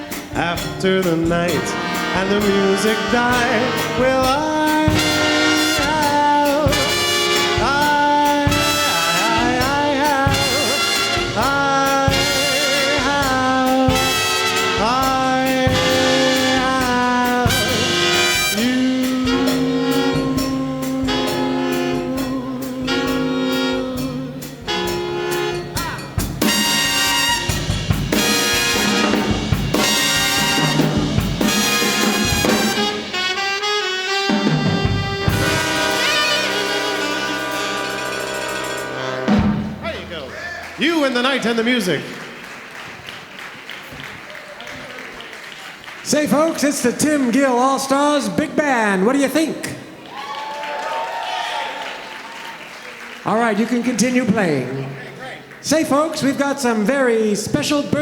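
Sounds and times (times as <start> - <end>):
steady drum beat: 0.0 - 41.7
big band playing swing jazz: 0.0 - 58.0.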